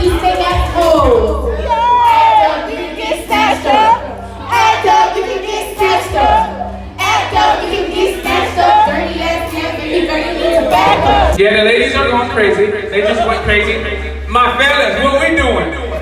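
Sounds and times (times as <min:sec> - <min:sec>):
people singing loudly: 0:00.0 - 0:11.4
backing track with bass line: 0:00.0 - 0:16.0.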